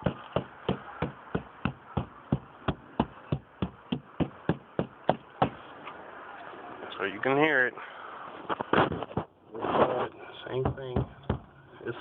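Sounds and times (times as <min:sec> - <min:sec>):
knocking on car body panel: 0:10.6 - 0:11.5.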